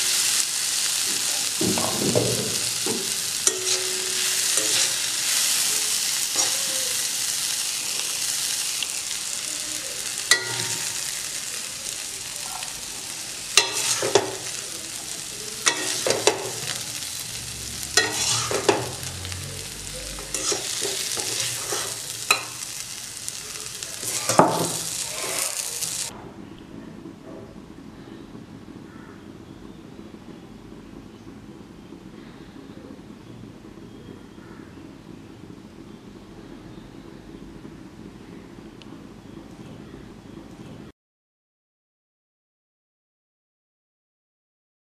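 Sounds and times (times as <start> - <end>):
greens sizzling in oil: 0.0 - 26.1
spatula scraping metal pan: 1.8 - 7.0, 13.6 - 14.6, 17.8 - 19.3, 20.2 - 22.6.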